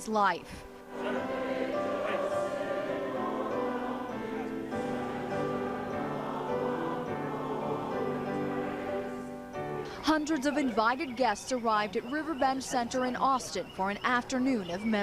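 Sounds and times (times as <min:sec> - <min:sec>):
choir singing long notes: 0:00.8 - 0:10.0.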